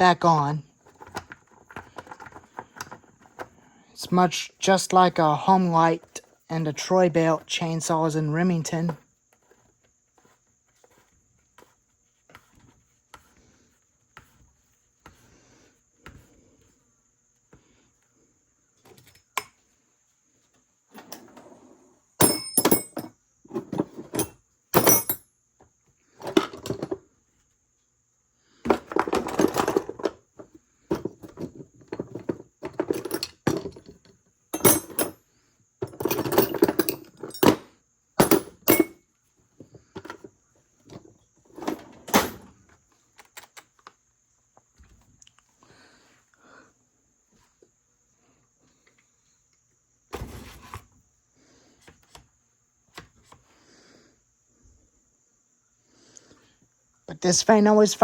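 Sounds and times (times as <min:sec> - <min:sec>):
tools knocking and clinking: 0:22.2 - 0:25.2, 0:30.9 - 0:35.2, 0:35.8 - 0:39.0.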